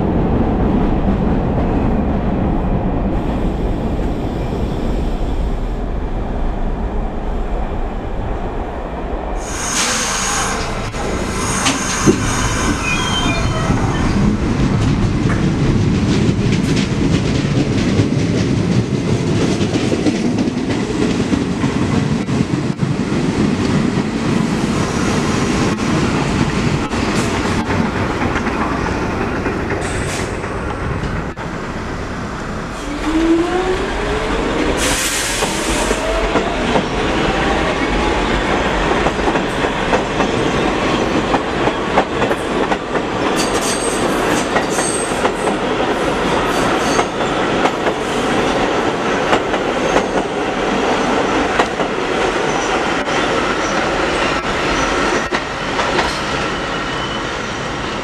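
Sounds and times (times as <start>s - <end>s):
train rumbling on track: 0.0s - 58.0s
high-pitched wheel squeals: 9.4s - 14.2s.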